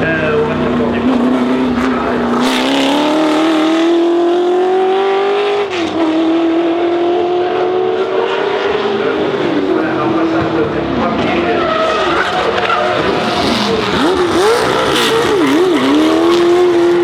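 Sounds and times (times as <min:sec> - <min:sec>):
racing car engine at high revs: 0:00.0 - 0:17.0
gear upshift: 0:11.3 - 0:17.0.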